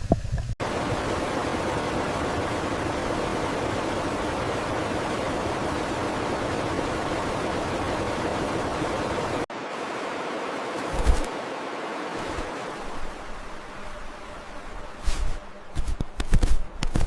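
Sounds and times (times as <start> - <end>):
water rushing: 0.0 - 15.7.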